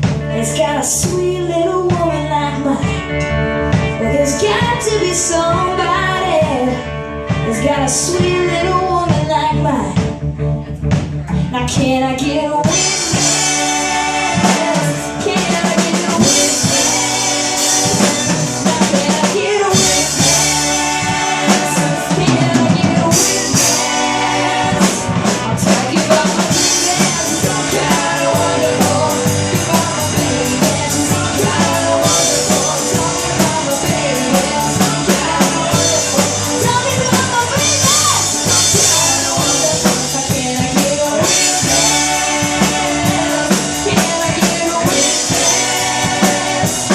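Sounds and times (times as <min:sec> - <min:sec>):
drum kit beat: 0:00.0 - 0:02.3, 0:12.6 - 0:46.9
rock band playing: 0:00.0 - 0:46.9.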